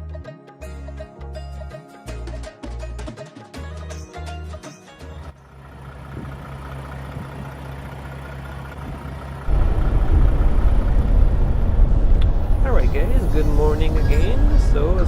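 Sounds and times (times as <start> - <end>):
background music: 0.0 - 5.4, 11.8 - 15.0
diesel truck engine idling: 5.4 - 15.0
loud low rumble: 9.4 - 15.0.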